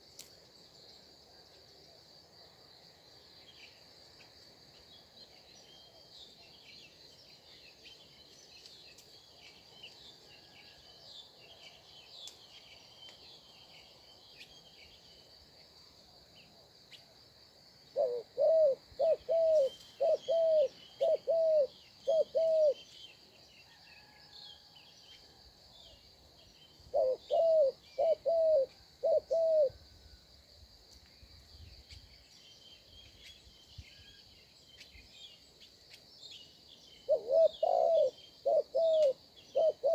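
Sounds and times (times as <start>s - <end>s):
insect drone: 0.0s - 39.9s
small birds chirping: 3.4s - 15.8s, 17.9s - 29.8s, 30.9s - 39.9s
bird hooting: 18.0s - 22.8s, 26.9s - 29.8s, 37.1s - 39.9s.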